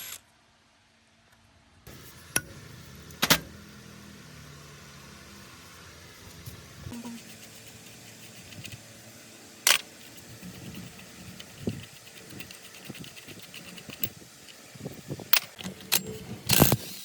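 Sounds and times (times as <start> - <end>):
metal parts and tools clinking: 9.7 - 17.0.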